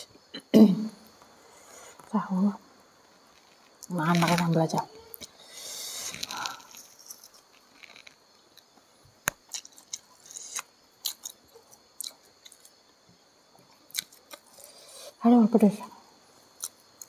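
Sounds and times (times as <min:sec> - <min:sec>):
person chewing food: 0:05.2 - 0:12.8.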